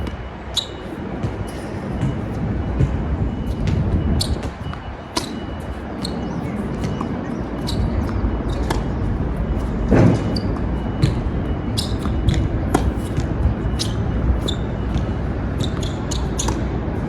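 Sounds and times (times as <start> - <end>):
balls bouncing on hard court: 0.0 - 17.0
wind rumble on microphone: 0.0 - 17.0
tennis balls struck by rackets: 3.6 - 17.0.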